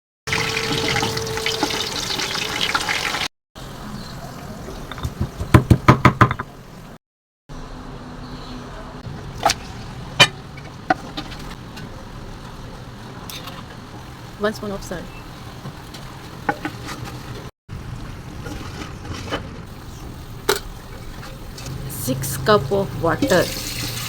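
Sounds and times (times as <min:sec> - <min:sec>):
steady cooking hiss: 0:09.1 - 0:18.1, 0:19.7 - 0:22.2, 0:23.1 - 0:24.0.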